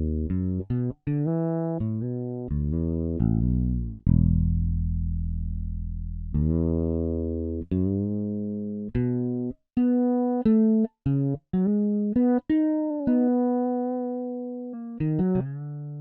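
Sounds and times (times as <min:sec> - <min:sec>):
fretless bass notes: 0:00.0 - 0:16.0.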